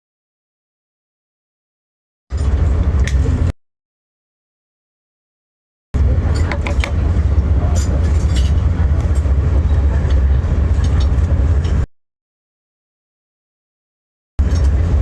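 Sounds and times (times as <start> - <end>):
train rumbling: 2.3 - 3.5, 6.0 - 11.9, 14.4 - 15.0.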